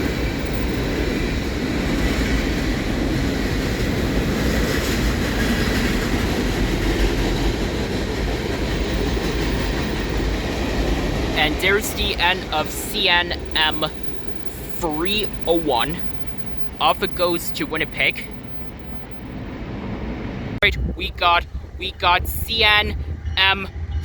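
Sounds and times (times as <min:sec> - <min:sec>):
steel wheels on rail: 0:00.0 - 0:24.0.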